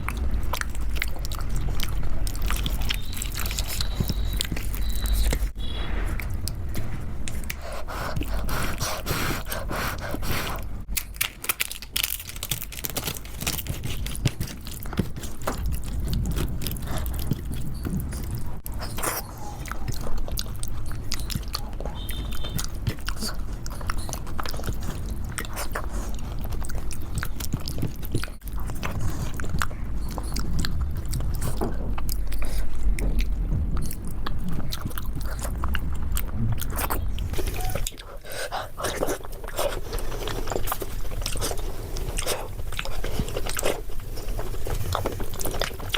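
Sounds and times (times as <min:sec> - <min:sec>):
mouth smacks and clicks: 0:00.0 - 0:05.6, 0:13.4 - 0:39.8
chewing and wet mouth sounds: 0:00.0 - 0:45.9.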